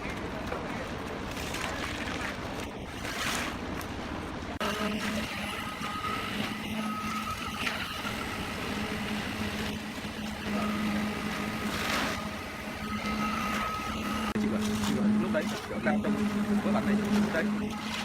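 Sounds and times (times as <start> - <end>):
high whine: 4.6 - 18.0.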